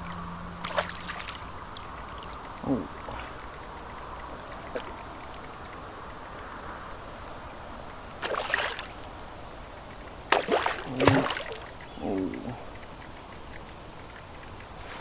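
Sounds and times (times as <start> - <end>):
river water flowing: 0.0 - 15.0
fish splashing: 0.1 - 5.6, 8.2 - 9.0, 10.3 - 12.3.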